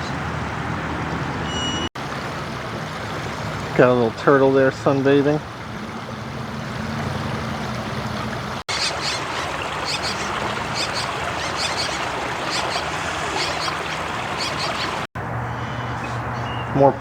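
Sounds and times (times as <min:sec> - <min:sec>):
small birds chirping: 0:08.7 - 0:16.8.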